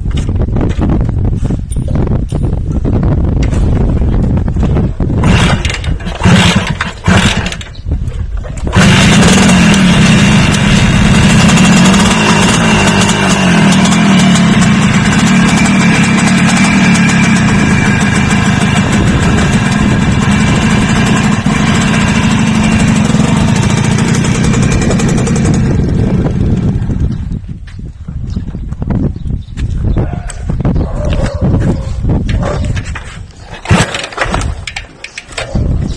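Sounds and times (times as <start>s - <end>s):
motor engine starting and running: 3.4s - 27.6s, 33.5s - 35.8s.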